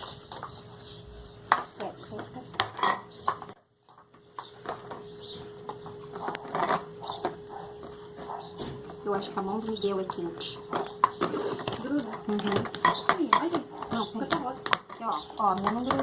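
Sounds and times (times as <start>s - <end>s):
containers and utensils clinking: 4.4s - 16.0s.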